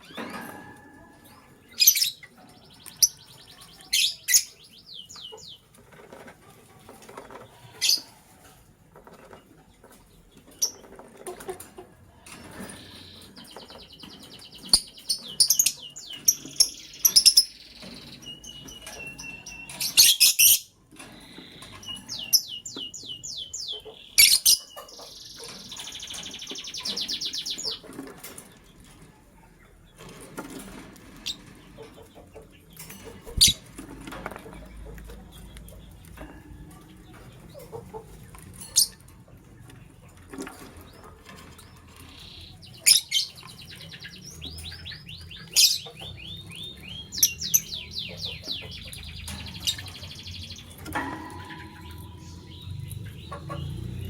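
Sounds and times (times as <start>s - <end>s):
lovebirds chirping: 0.0s - 6.3s, 6.9s - 8.2s, 12.2s - 30.2s, 31.1s - 54.0s.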